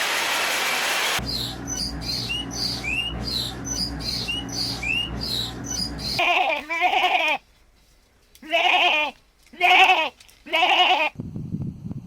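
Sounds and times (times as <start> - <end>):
low hum: 1.2 - 6.2
small birds chirping: 1.2 - 6.2
goat bleating: 6.2 - 7.4, 8.4 - 11.2.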